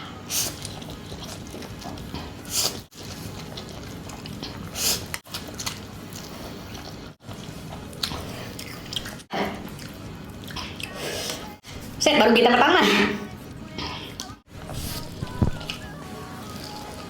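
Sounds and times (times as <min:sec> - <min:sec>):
chewing noodles close up: 0:00.4 - 0:11.5.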